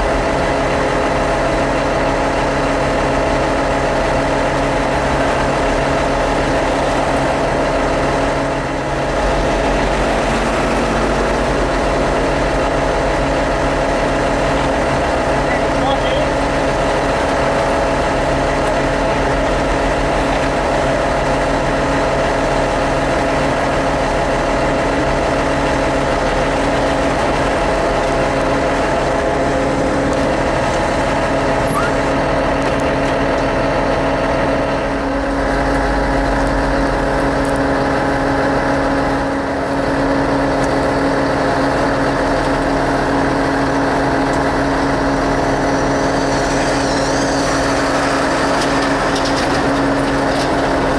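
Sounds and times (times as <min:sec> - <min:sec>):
excavator diesel engine droning: 0:00.0 - 0:50.9.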